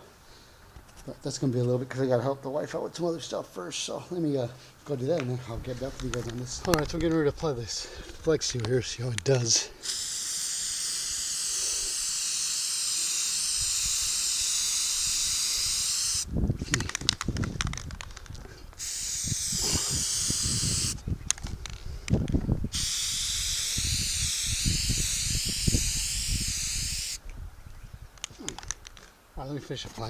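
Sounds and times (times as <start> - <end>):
aerosol can spraying: 9.8 - 16.3, 18.8 - 21.0, 22.7 - 27.2.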